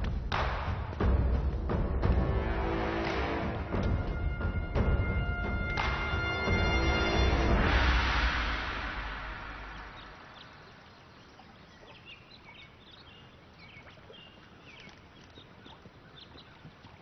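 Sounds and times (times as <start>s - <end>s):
soundtrack music: 0.0s - 10.2s
songbirds chirping: 9.0s - 17.0s.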